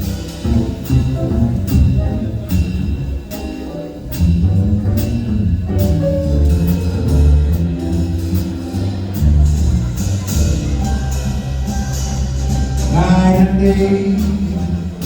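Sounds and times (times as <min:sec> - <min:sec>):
drum kit beat: 0:00.0 - 0:15.0
live band playing instrumental: 0:00.0 - 0:15.0.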